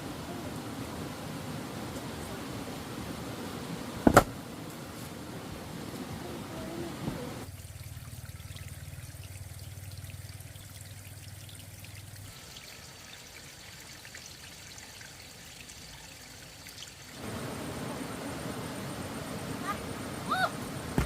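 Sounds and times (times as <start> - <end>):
water trickling and pouring: 6.6 - 17.7
small water drips: 7.4 - 17.2.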